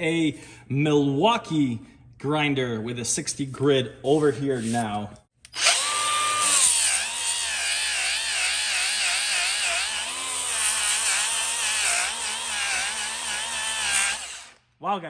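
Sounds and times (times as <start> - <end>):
abrasive grinding steel: 5.5 - 14.6
grinder motor whine: 5.5 - 14.6.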